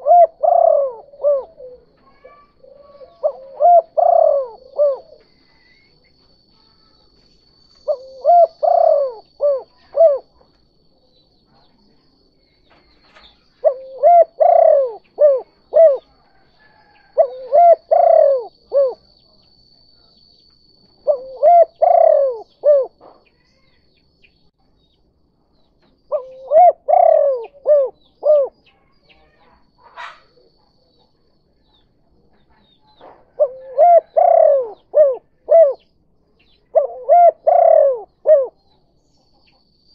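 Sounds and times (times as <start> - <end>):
dove cooing: 0.0 - 6.1, 7.8 - 10.5, 13.0 - 19.1, 21.0 - 23.2, 26.1 - 30.5, 33.1 - 35.9, 36.5 - 38.8.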